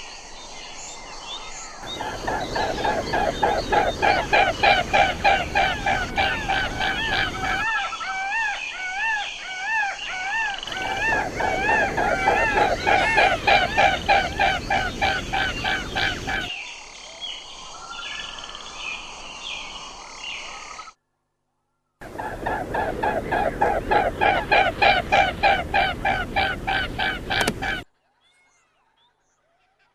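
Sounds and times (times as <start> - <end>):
swans honking: 1.9 - 7.7, 10.7 - 16.5, 22.0 - 27.8.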